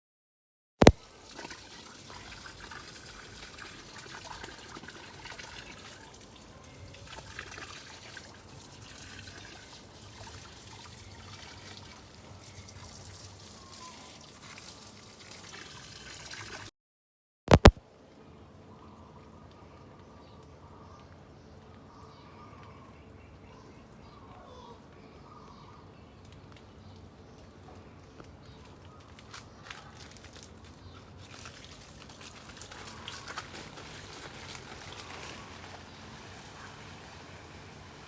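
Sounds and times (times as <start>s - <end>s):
water trickling: 0.9s - 16.7s, 29.1s - 38.0s
sharp clicks: 17.5s - 17.8s.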